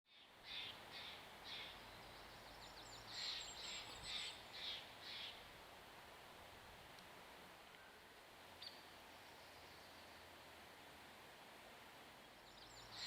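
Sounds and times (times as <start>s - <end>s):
bird harsh calls: 3.0s - 5.4s.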